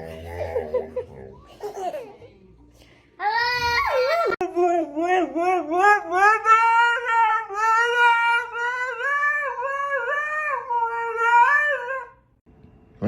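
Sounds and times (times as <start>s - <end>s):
dog howling: 5.2s - 12.2s.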